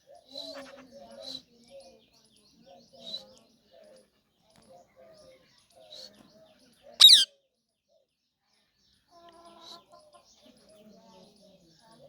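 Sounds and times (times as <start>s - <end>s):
faint bird chirps: 7.0s - 7.3s
parrot screech: 7.0s - 7.3s.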